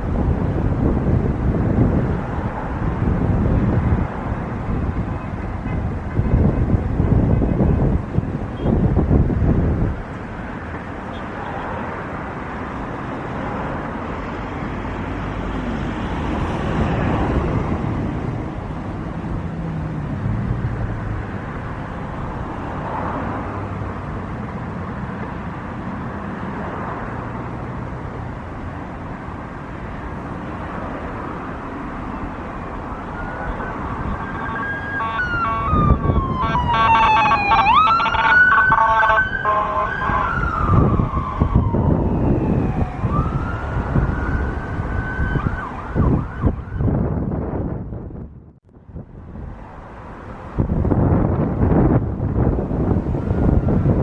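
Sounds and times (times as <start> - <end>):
emergency siren wailing: 32.1 - 47.3, 52.6 - 54.0.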